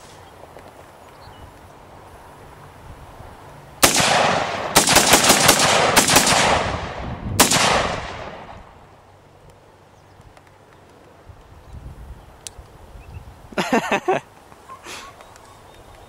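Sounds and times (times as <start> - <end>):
echoing gunshots: 3.8 - 8.9.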